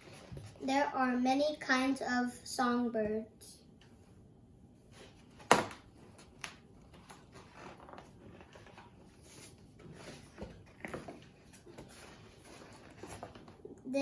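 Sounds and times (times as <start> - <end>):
paper rustling: 5.0 - 13.7.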